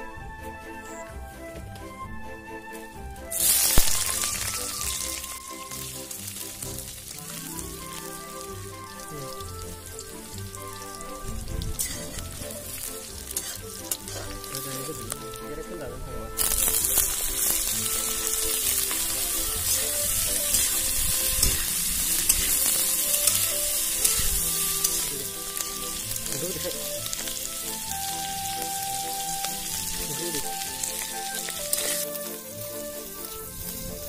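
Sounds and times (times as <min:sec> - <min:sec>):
food sizzling in wok: 0:03.3 - 0:15.5, 0:16.3 - 0:34.0
metal spatula scraping wok: 0:10.0 - 0:15.4, 0:16.4 - 0:28.2, 0:29.2 - 0:33.8.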